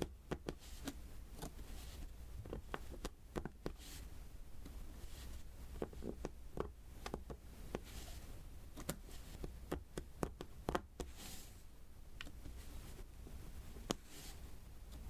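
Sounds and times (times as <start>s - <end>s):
soft rustle: 0.5s - 6.3s, 7.5s - 9.6s, 11.0s - 15.0s.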